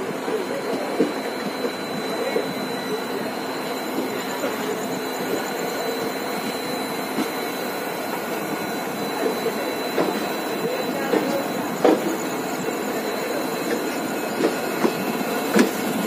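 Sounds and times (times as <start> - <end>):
thin high tone: 0.0 - 16.0
train rolling over track: 0.0 - 16.0.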